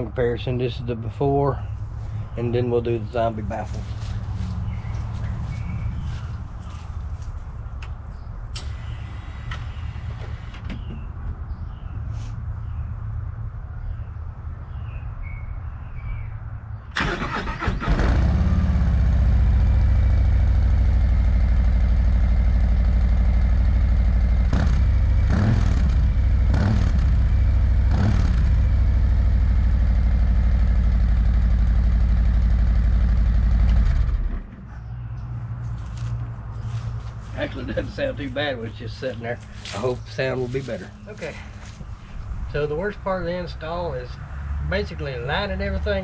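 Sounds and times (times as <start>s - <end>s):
motorcycle engine idling and revving: 0.0s - 12.0s, 17.5s - 46.0s
low rumble: 1.6s - 8.6s
motorcycle starter cranking: 17.0s - 18.4s.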